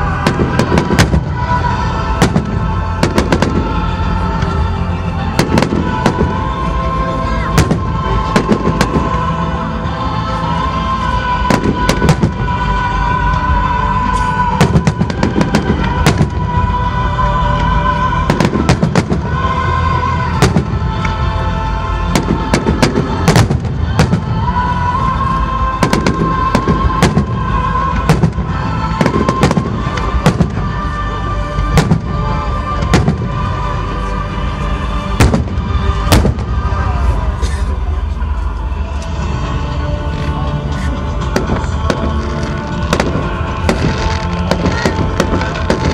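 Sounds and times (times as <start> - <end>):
fireworks exploding: 0.0 - 4.6, 5.2 - 6.8, 7.4 - 9.3, 11.4 - 12.8, 14.4 - 16.7, 18.2 - 21.2, 22.1 - 24.4, 25.8 - 33.8, 35.1 - 36.8, 41.3 - 45.9
music playing: 0.0 - 45.9.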